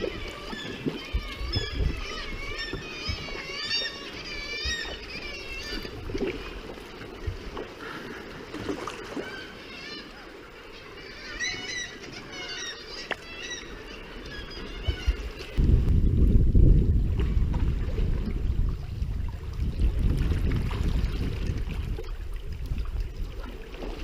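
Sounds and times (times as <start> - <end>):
birds quavering calls: 0.0 - 6.1, 9.0 - 15.6
water rumble around kayak: 0.0 - 24.0
wind: 0.0 - 24.0.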